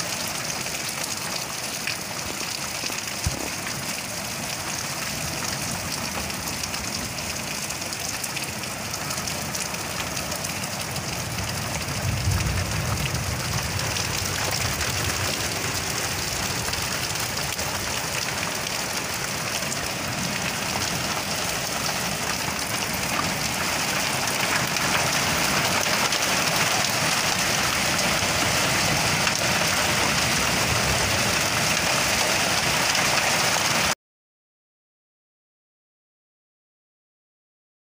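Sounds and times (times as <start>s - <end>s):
heavy rain with hail: 0.0s - 34.0s
low rumble: 11.2s - 17.6s.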